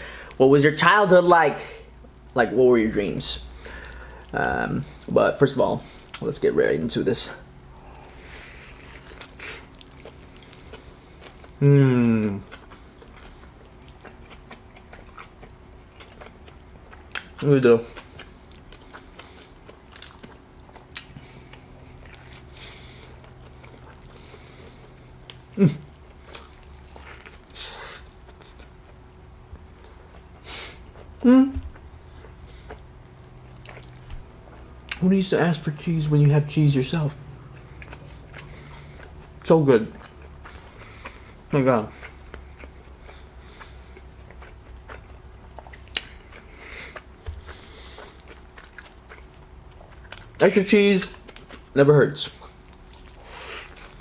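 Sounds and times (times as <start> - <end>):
person chewing: 3.5 - 54.0
person humming: 11.6 - 12.4, 31.2 - 31.7
person biting and chewing: 42.0 - 50.4.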